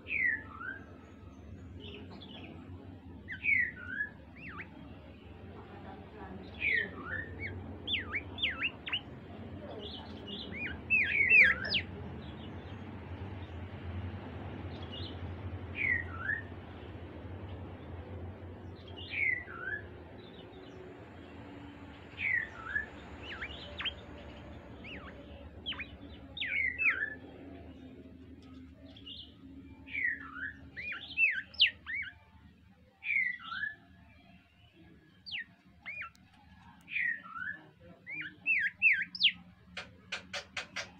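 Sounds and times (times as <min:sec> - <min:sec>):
low background rumble: 0:00.0 - 0:40.9
songbird whistled notes: 0:03.3 - 0:05.1, 0:15.8 - 0:16.5, 0:21.4 - 0:27.3, 0:29.0 - 0:32.3, 0:35.2 - 0:36.3, 0:36.9 - 0:39.5.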